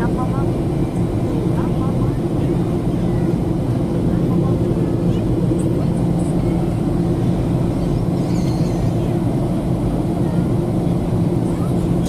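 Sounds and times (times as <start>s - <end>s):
airliner cabin engine hum: 0.0s - 12.0s.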